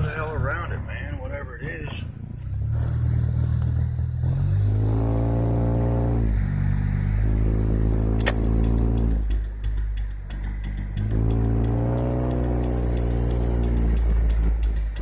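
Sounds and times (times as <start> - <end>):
car engine hum in cabin: 0.0 - 15.0
sharp click: 8.2 - 10.1.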